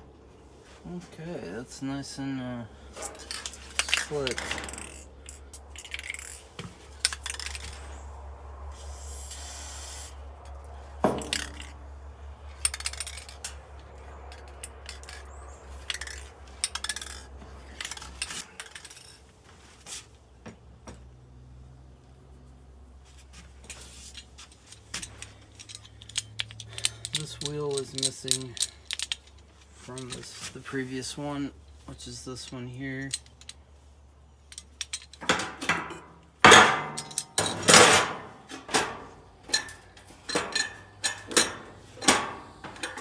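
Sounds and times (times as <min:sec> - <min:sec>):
small metal parts clinking: 0:02.9 - 0:08.0, 0:10.4 - 0:11.9, 0:12.5 - 0:19.3, 0:23.6 - 0:30.8, 0:31.6 - 0:43.0
short hiss: 0:08.9 - 0:10.2.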